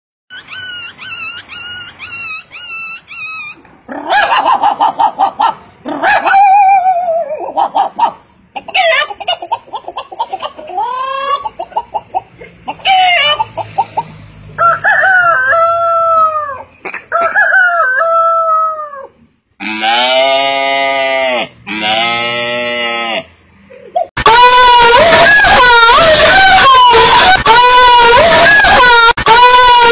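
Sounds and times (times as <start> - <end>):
man imitating chicken: 24.0 - 29.9.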